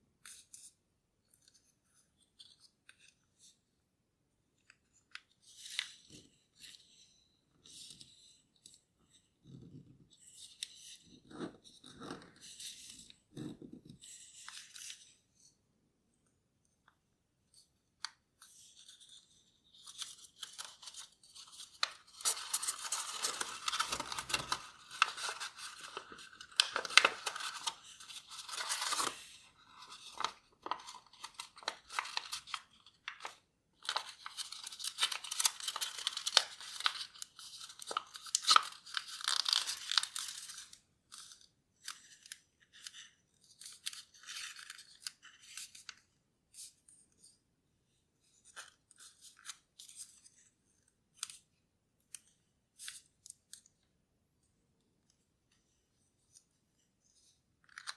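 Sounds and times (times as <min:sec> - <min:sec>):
paper crinkling and rustling: 0:18.4 - 0:46.0.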